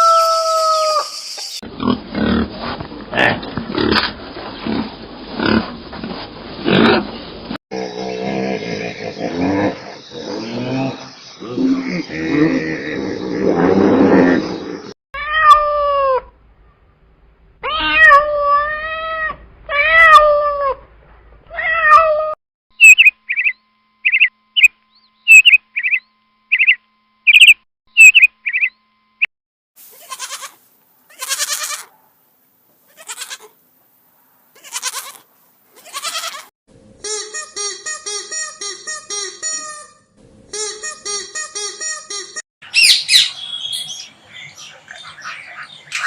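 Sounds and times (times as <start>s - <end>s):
cat meowing: 15.2s - 16.3s, 17.6s - 20.8s, 21.5s - 22.4s
short hissy bursts: 29.8s - 31.8s.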